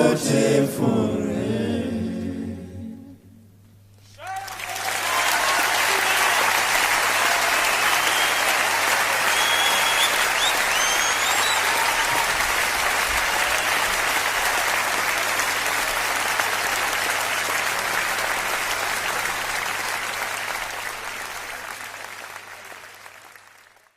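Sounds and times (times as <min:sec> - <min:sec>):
audience applauding: 0:04.1 - 0:23.9
whistles: 0:07.6 - 0:12.2.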